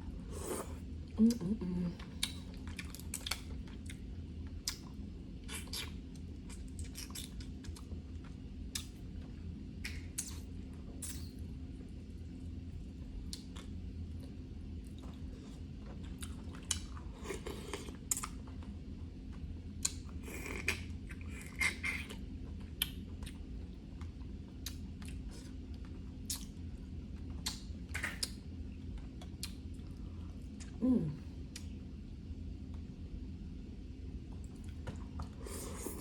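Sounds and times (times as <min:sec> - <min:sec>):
chewing and sucking: 0:26.2 - 0:26.6.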